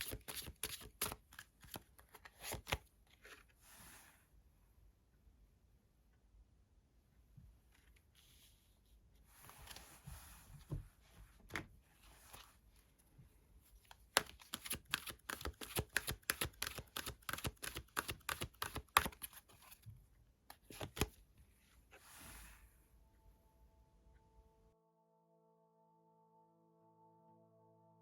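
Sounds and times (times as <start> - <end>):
cards sliding: 0.0 - 3.4, 13.9 - 19.8, 20.5 - 21.2
cards snapping: 14.0 - 19.4, 20.6 - 21.1.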